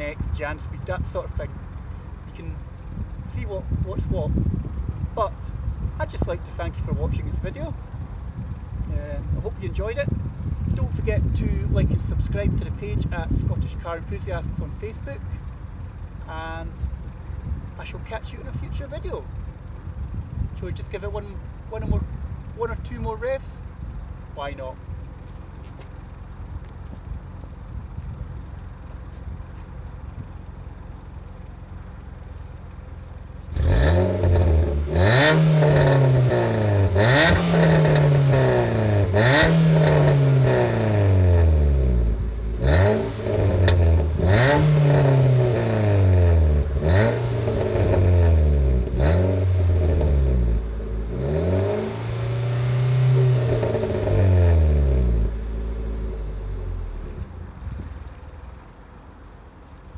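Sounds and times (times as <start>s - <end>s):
car engine revving: 29.9s - 57.6s.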